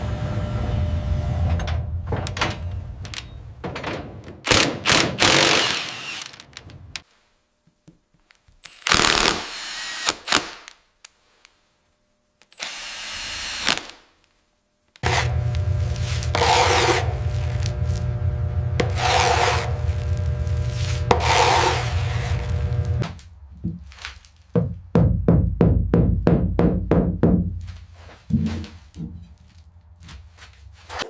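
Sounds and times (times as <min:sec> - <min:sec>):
low hum: 0:00.0 - 0:04.3, 0:15.0 - 0:23.6
grinding: 0:15.0 - 0:23.0
scraping: 0:15.0 - 0:24.5.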